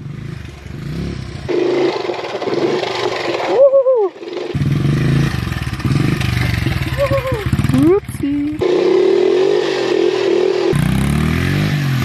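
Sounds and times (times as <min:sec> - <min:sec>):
small motorbike engine running: 0:00.0 - 0:12.0
wavering voice-like call: 0:03.5 - 0:04.3.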